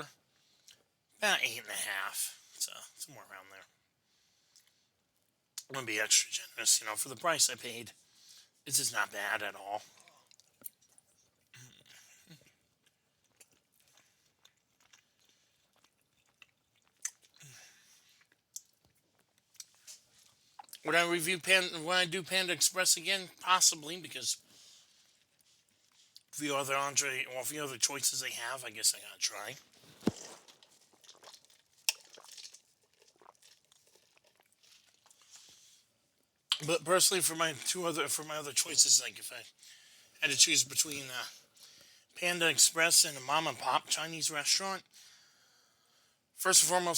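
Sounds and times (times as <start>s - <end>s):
person chewing food: 9.8s - 20.8s, 29.6s - 35.9s
wet mouth clicks: 30.0s - 35.2s.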